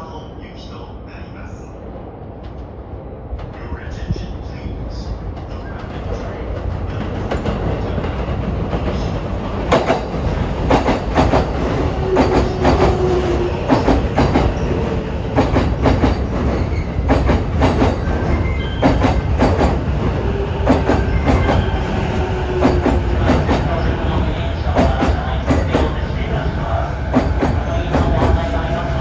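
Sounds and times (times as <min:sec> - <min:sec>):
train rumble: 0:00.0 - 0:29.0
wheels clacking over rail joints: 0:05.4 - 0:21.8, 0:22.5 - 0:24.0, 0:24.7 - 0:28.7.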